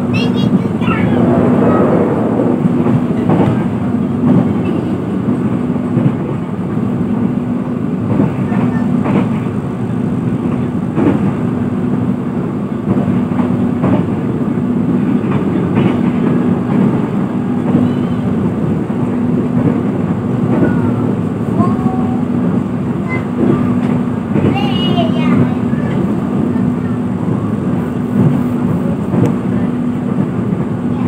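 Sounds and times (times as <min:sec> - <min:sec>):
train wheels rumbling on track: 0:00.0 - 0:31.0
constant low hum: 0:00.1 - 0:06.1.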